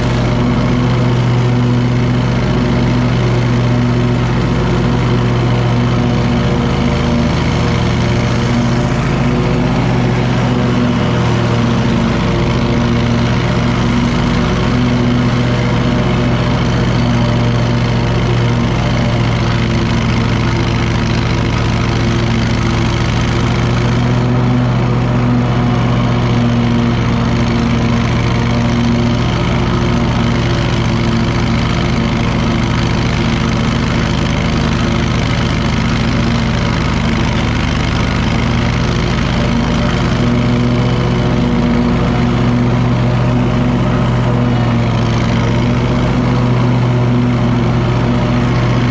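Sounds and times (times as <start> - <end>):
lawn mower engine running: 0.0 - 48.9.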